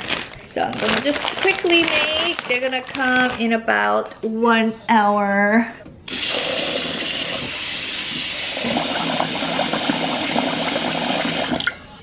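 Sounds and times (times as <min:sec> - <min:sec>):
faucet running into a pot: 0:06.1 - 0:11.8.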